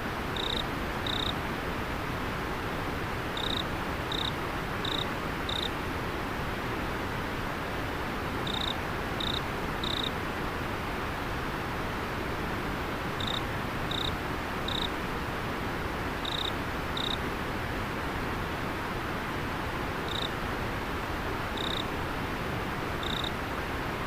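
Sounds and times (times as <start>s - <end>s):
insect chirping: 0.4s - 1.4s, 3.4s - 5.7s, 8.5s - 10.1s, 13.2s - 14.1s, 14.7s - 14.9s, 16.2s - 17.2s, 20.1s - 20.3s, 21.6s - 21.8s, 23.0s - 23.3s.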